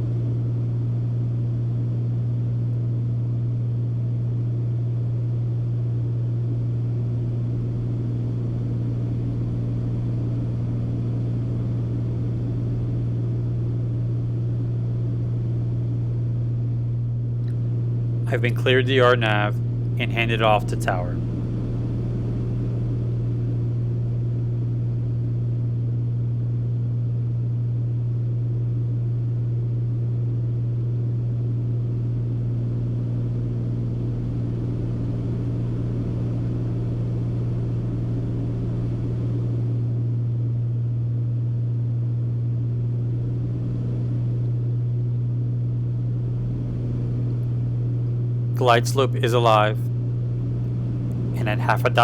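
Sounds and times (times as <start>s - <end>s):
twin piston aircraft engines droning: 18.3s - 21.2s.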